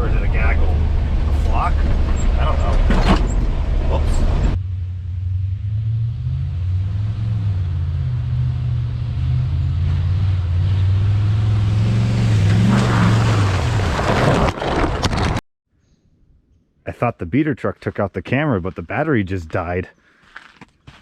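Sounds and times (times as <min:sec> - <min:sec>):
truck engine running: 0:00.0 - 0:12.8.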